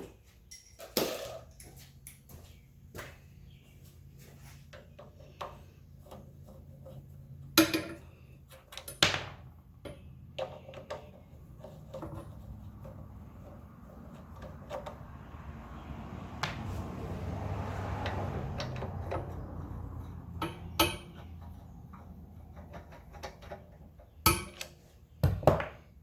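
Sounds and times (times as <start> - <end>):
metal tools clinking: 0.5 - 1.8.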